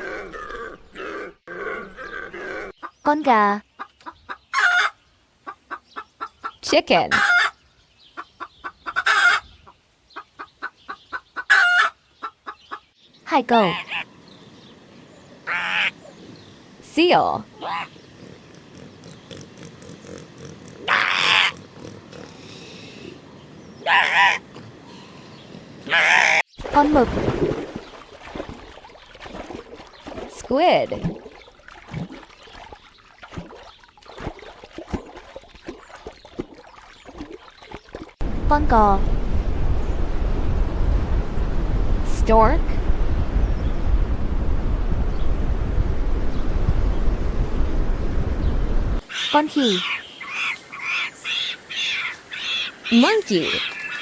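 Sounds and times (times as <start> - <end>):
chicken squawking: 4.3 - 6.3, 7.1 - 7.6, 8.4 - 9.5, 10.4 - 12.6, 15.5 - 16.0, 20.9 - 21.6, 23.8 - 24.4, 25.8 - 26.4, 49.0 - 54.0
water gurgling and bubbling: 29.3 - 49.0.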